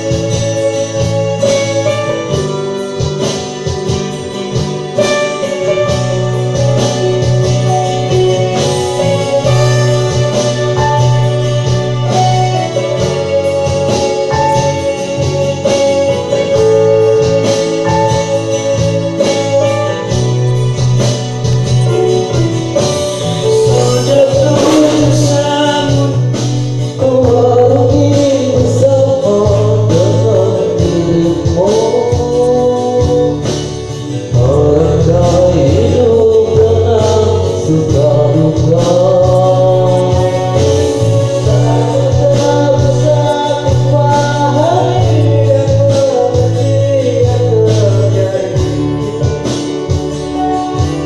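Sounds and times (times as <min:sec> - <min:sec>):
instrumental backing: 0:00.0 - 0:51.0
person singing devotional song: 0:23.6 - 0:26.4.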